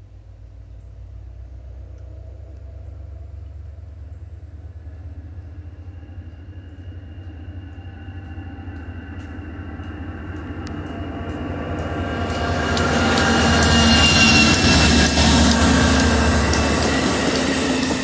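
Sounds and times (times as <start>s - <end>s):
diesel train approaching: 0.0s - 18.0s
high whine: 4.4s - 18.0s
sharp clicks on rails: 8.2s - 18.0s.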